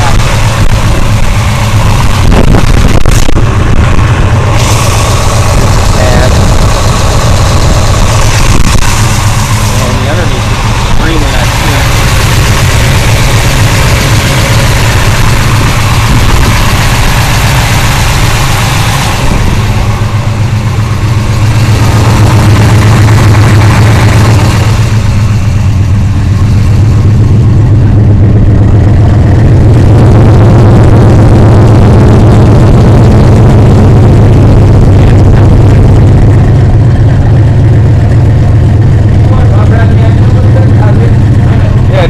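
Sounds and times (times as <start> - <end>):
loud engine idling rumble: 0.0 - 42.0.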